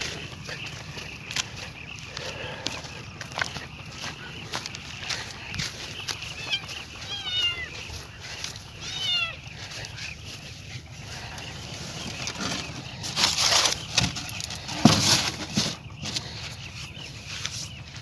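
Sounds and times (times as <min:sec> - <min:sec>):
cat meowing: 0:06.5 - 0:07.7, 0:08.8 - 0:09.4
rustling: 0:11.2 - 0:16.4.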